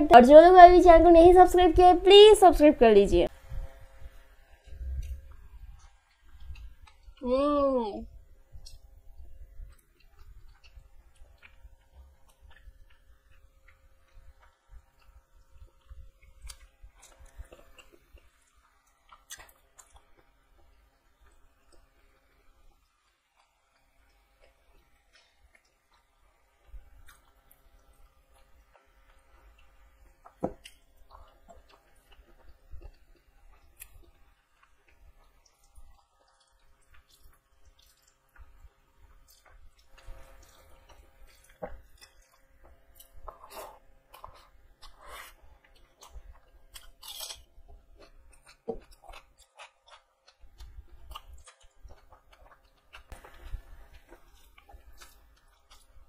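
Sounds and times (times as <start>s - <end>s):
chewing and wet mouth sounds: 3.3s - 7.4s, 8.0s - 56.0s.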